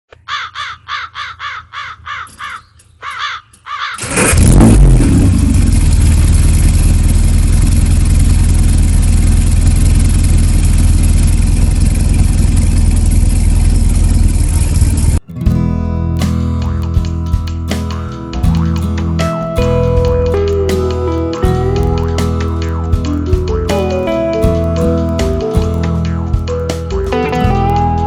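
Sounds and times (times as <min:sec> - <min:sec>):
car engine cranking: 0:04.0 - 0:15.3
car engine running: 0:04.2 - 0:15.6, 0:16.2 - 0:28.0.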